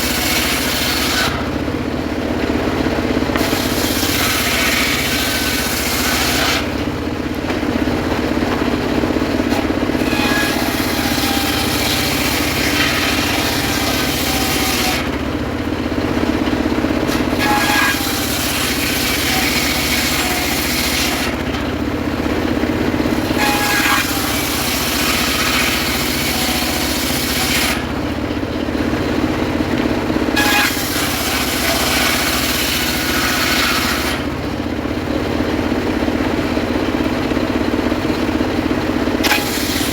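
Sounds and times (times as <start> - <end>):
circular saw cutting wood: 0.0 - 35.3, 38.0 - 39.9.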